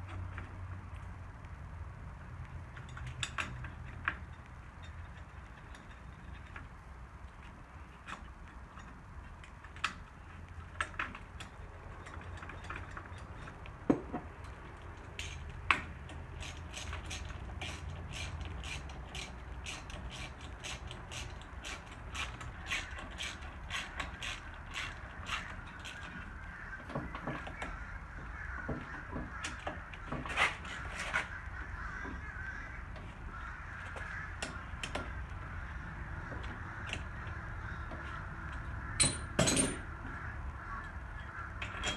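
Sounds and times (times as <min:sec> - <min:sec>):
metal taps and knocks: 0:10.7 - 0:17.4, 0:25.7 - 0:30.4, 0:33.8 - 0:35.5, 0:36.2 - 0:40.2
hand ratchet wrench clicking: 0:14.4 - 0:26.3.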